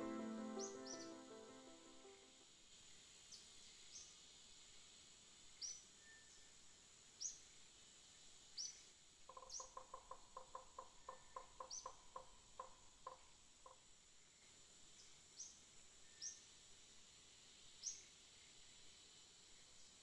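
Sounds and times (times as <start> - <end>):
birds chirping: 0.0 - 2.1
low pulsed notes: 0.0 - 2.2
faint high hiss: 0.0 - 20.0.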